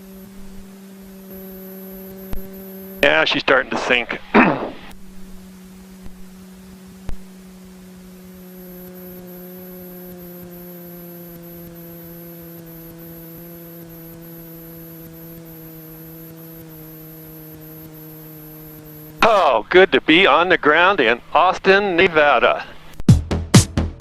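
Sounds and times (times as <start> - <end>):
electrical hum: 0.0 - 23.0
faint high whine: 0.0 - 23.0
steady tones: 0.0 - 23.1
short thump: 4.3 - 5.0.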